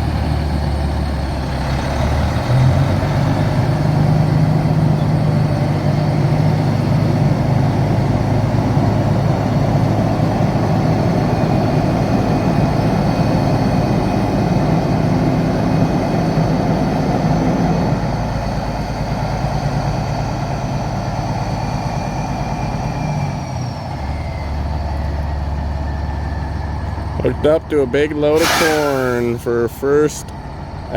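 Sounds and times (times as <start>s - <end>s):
truck diesel engine running: 0.0s - 30.9s.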